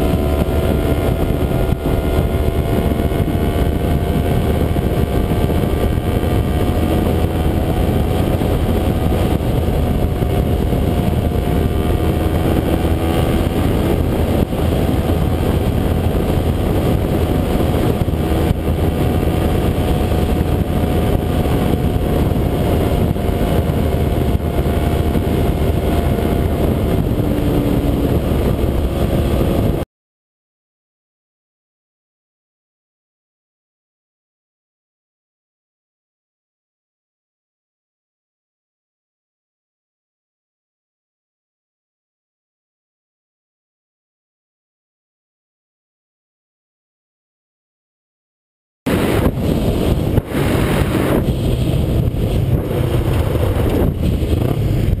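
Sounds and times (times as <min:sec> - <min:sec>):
motorcycle engine cruising: 0:00.0 - 0:29.9, 0:48.9 - 0:55.0
wind rumble on microphone: 0:00.0 - 0:29.9, 0:48.9 - 0:55.0.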